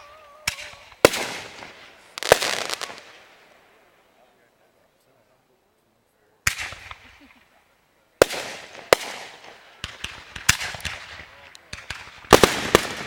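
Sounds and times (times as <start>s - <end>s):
fireworks bangs with crackling: 0.0s - 3.6s, 6.4s - 7.4s, 8.2s - 13.0s
sharp firework pops: 0.4s - 3.4s, 6.4s - 7.3s, 8.2s - 13.0s.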